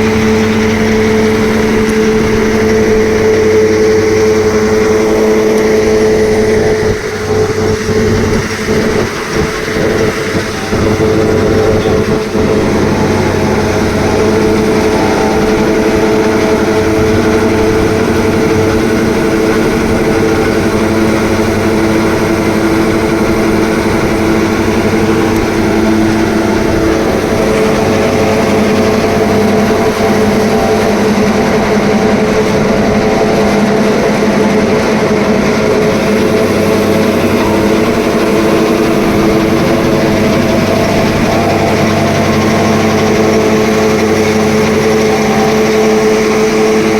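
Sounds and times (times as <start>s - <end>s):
tractor engine drone: 0.0s - 46.9s.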